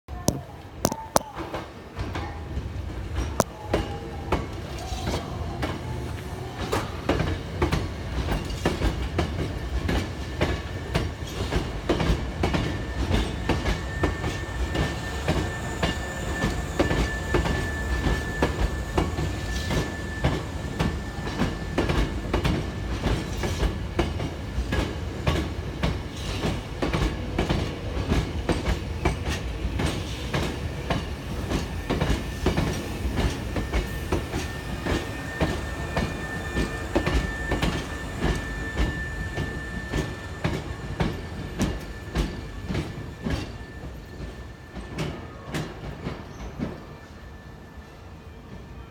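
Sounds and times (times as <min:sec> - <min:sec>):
electric train rumbling: 0:00.1 - 0:48.9.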